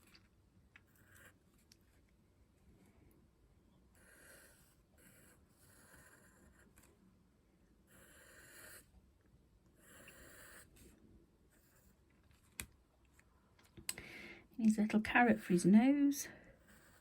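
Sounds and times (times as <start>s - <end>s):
pencil scratching on paper: 4.0s - 6.9s, 16.6s - 17.0s.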